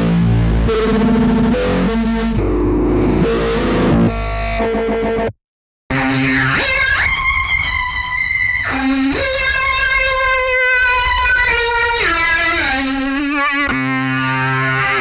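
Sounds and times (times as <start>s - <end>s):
distorted synth lead gliding: 0.0s - 4.7s.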